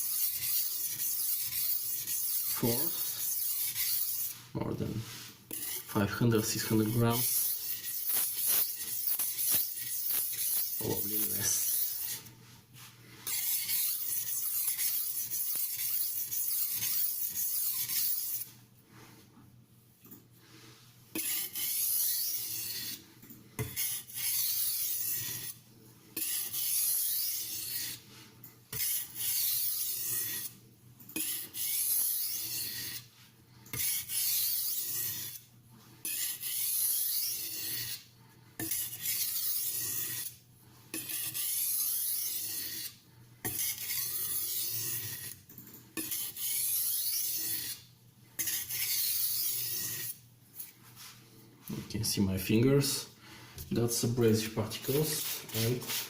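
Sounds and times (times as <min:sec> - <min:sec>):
knife scraping on sharpening stone: 0:00.0 - 0:04.4, 0:05.5 - 0:12.3, 0:13.2 - 0:18.5, 0:21.1 - 0:23.0, 0:23.6 - 0:25.6, 0:26.2 - 0:28.0, 0:28.7 - 0:33.1, 0:33.7 - 0:50.7.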